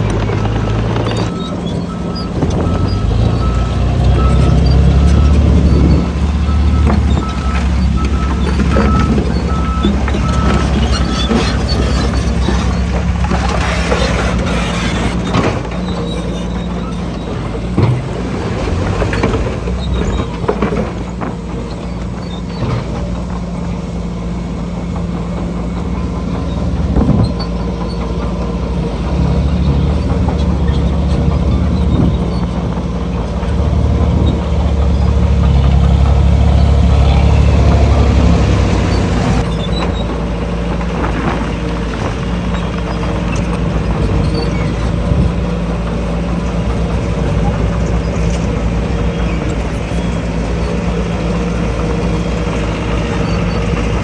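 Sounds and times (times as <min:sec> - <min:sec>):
heavy machinery diesel engine: 0:00.0 - 0:54.0
short knocks and clanks: 0:26.7 - 0:54.0.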